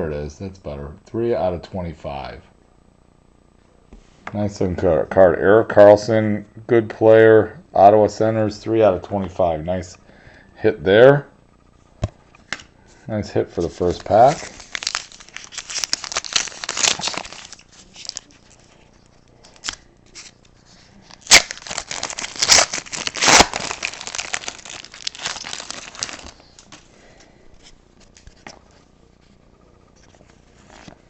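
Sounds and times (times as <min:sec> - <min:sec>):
cards rustling: 0:13.6 - 0:26.9
foil wrapper crinkling and tearing: 0:13.8 - 0:18.7, 0:21.1 - 0:26.9.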